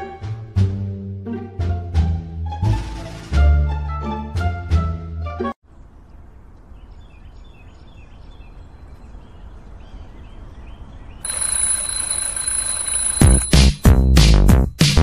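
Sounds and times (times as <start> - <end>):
noisy outdoor ambience: 5.6 - 13.1.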